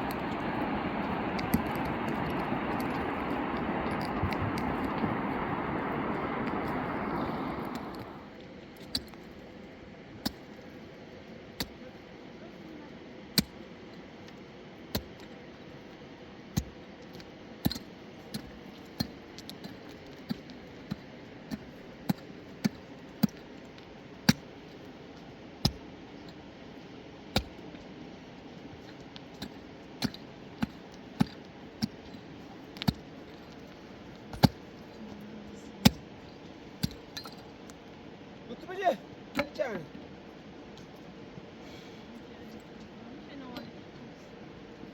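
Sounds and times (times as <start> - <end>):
steady background hiss: 0.0 - 44.9.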